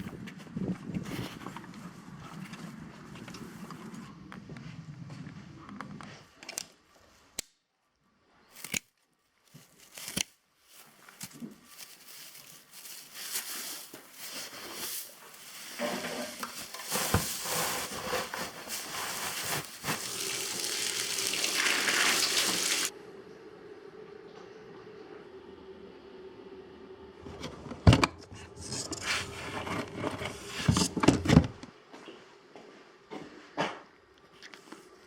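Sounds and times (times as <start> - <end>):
water running: 15.3 - 22.9.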